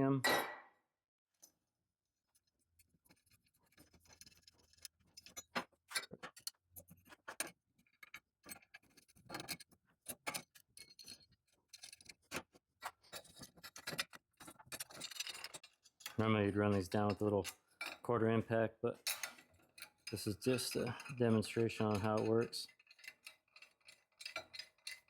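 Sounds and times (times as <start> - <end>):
metal clamp clicks and clinks: 19.1 - 25.0.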